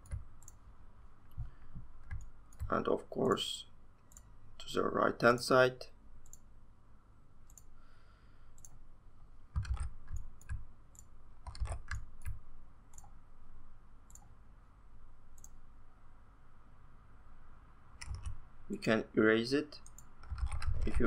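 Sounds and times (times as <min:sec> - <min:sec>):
computer mouse clicking: 0:00.0 - 0:00.6, 0:01.3 - 0:02.8, 0:06.2 - 0:06.4, 0:07.5 - 0:07.7, 0:08.6 - 0:08.8, 0:09.5 - 0:13.2, 0:14.1 - 0:14.3, 0:15.4 - 0:15.6, 0:18.0 - 0:18.4, 0:19.8 - 0:21.0.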